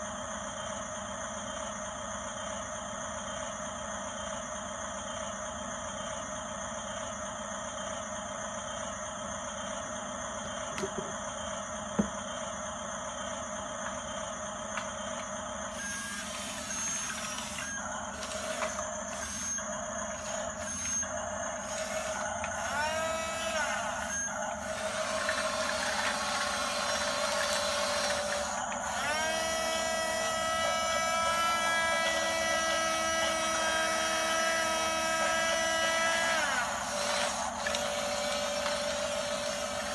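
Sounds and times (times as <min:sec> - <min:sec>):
toy electric motor whine: 0:13.3 - 0:39.9.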